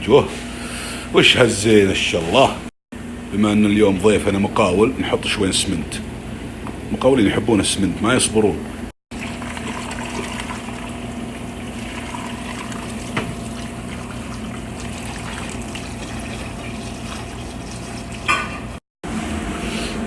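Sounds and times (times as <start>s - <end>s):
water rushing in cooking pot: 9.1s - 18.8s.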